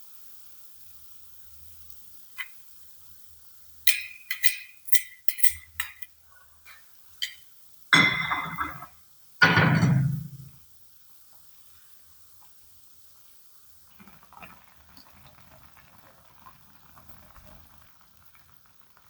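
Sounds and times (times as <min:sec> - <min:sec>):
glassy clinks of kitchenware: 0:03.9 - 0:06.1, 0:06.7 - 0:10.5.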